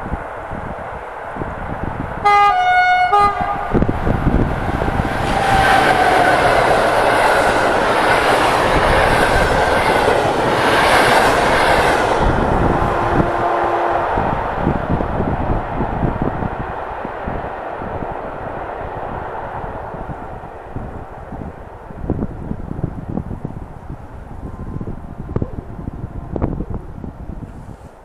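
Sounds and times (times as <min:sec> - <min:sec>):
train passing at speed: 0:00.0 - 0:28.0
train horn blast: 0:02.2 - 0:03.9, 0:12.6 - 0:14.4.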